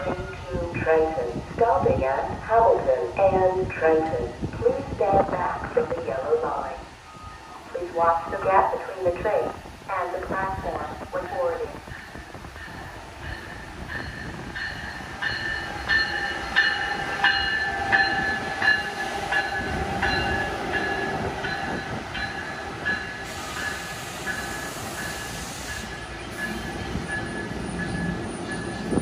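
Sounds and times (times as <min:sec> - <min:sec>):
rumble of wheels on rail: 0:00.0 - 0:29.0
locomotive bell ringing: 0:11.4 - 0:29.0
hiss: 0:23.2 - 0:26.5.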